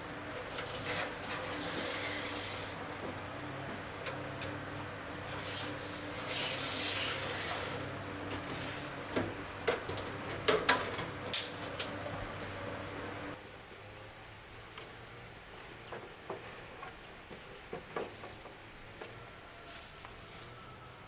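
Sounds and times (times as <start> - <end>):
rasping scrape: 0.5 - 2.8, 5.2 - 7.9.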